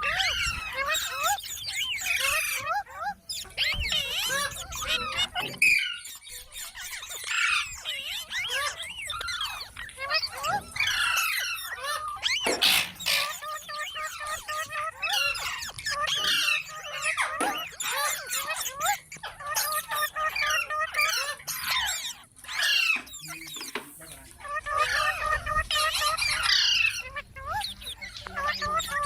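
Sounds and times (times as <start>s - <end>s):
parrot screeches: 0.0s - 23.6s, 24.4s - 29.0s
parrots chirping and squawking: 0.0s - 29.0s.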